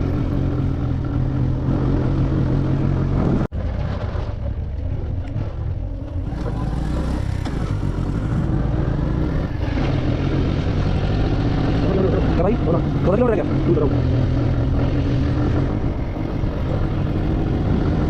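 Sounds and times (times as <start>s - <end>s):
motorcycle engine running: 0.0s - 18.0s
road noise: 0.0s - 18.0s
wind noise: 1.5s - 6.6s.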